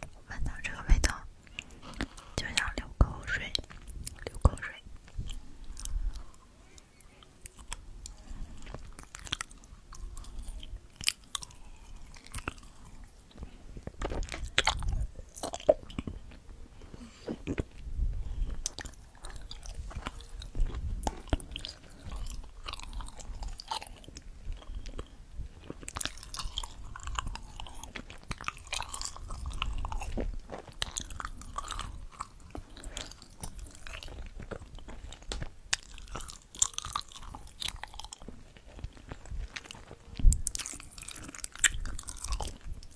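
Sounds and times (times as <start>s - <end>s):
person chewing food: 1.0s - 2.8s, 3.4s - 42.9s.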